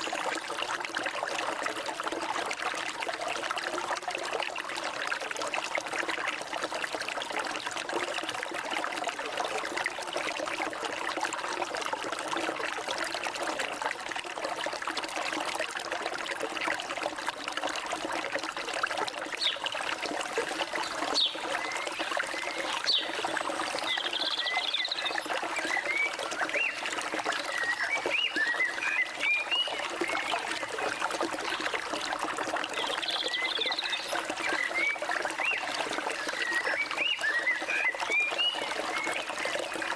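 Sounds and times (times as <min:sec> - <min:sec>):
stream water trickling: 0:00.0 - 0:39.9
birds chirping: 0:20.8 - 0:26.8.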